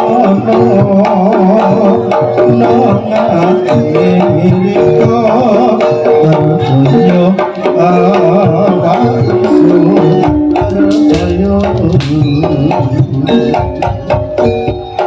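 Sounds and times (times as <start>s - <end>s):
hand drums playing busy rhythm: 0.0s - 15.0s.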